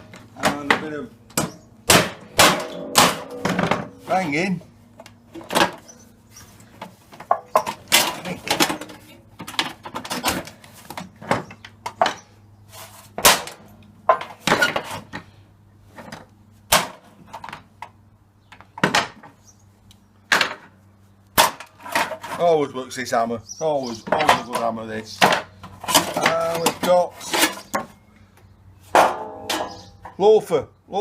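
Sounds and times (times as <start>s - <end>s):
hammer striking metal: 1.4s - 4.1s.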